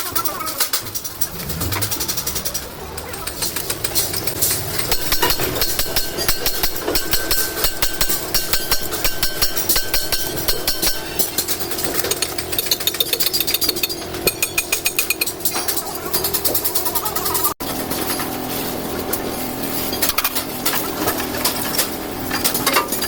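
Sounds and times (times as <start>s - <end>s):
rapid metallic knocks: 0.6s - 15.5s.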